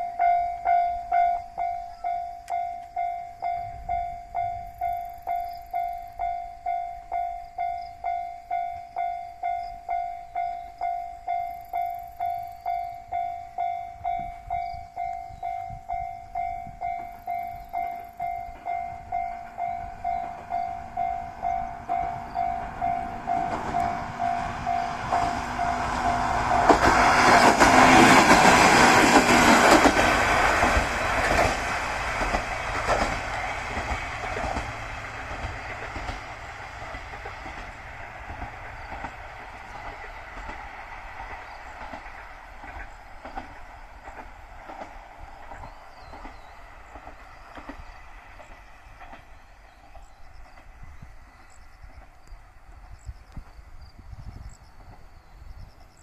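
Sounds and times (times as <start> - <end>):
level crossing alarm ringing: 0.0 - 27.7
train rushing past: 0.0 - 56.0
wheels clacking over rail joints: 16.0 - 50.8.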